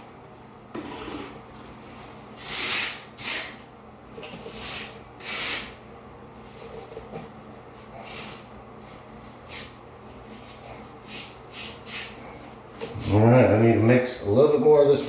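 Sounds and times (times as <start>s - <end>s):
trowel scraping mortar: 0.8s - 1.4s.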